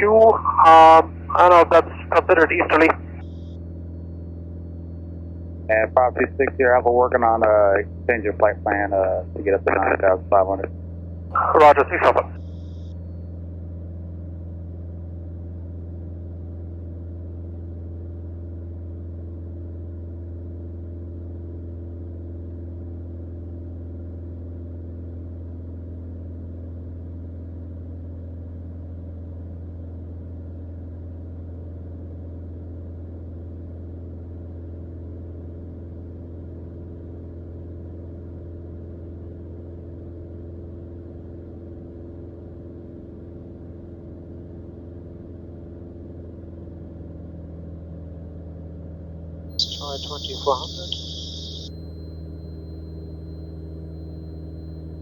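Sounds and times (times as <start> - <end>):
propeller plane engine drone: 0.0 - 28.9, 49.6 - 55.0.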